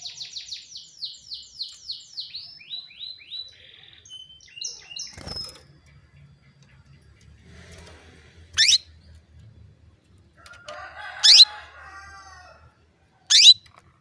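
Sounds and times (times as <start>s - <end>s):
canary short sharp calls: 8.6s - 8.9s, 11.2s - 11.5s, 13.3s - 13.6s
fainter lower bird call: 8.6s - 8.9s, 13.3s - 13.7s.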